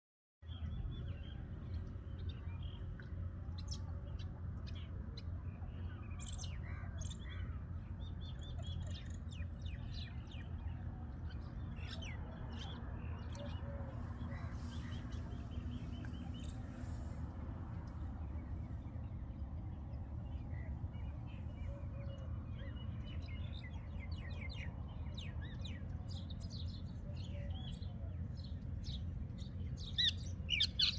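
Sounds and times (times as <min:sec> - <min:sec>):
birds chirping: 0:05.8 - 0:30.9.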